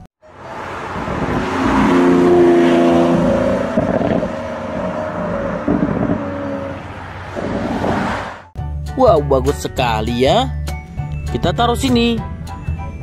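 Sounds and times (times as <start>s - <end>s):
car engine running: 0.5s - 8.5s.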